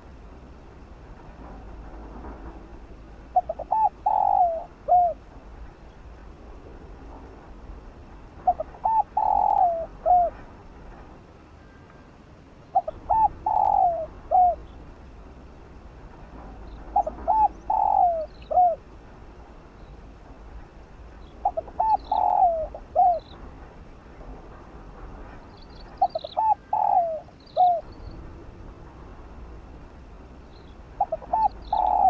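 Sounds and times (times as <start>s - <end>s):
dove cooing: 3.2s - 5.3s, 8.4s - 10.5s, 12.7s - 14.9s, 16.4s - 18.9s, 21.3s - 23.4s, 26.0s - 28.0s, 31.0s - 32.0s.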